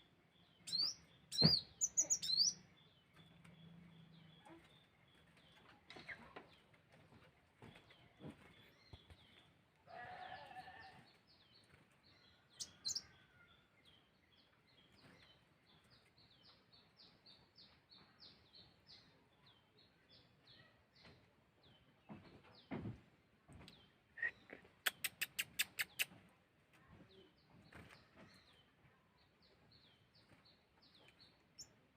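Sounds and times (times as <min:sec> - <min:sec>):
sunbird high chirps: 0:00.6 - 0:02.7.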